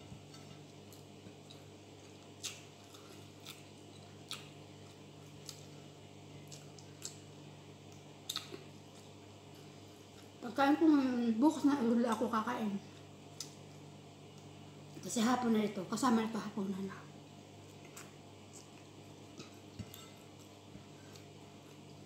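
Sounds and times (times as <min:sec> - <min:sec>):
low steady hum: 0:00.0 - 0:22.0
mouth clicks and chewing smacks: 0:06.5 - 0:07.2, 0:07.9 - 0:08.7, 0:17.7 - 0:21.8.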